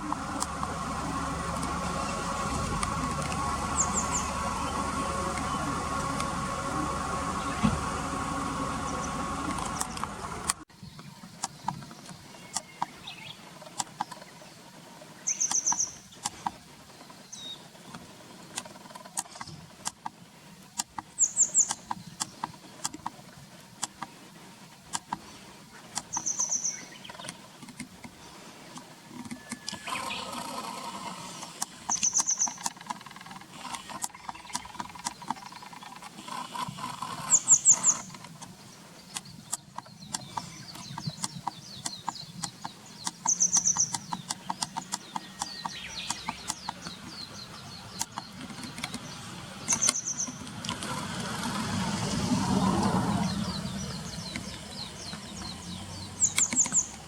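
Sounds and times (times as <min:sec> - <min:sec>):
steady hum: 0:00.0 - 0:10.7
bird high sharp calls: 0:31.3 - 0:32.7, 0:37.2 - 0:38.1, 0:39.1 - 0:49.1.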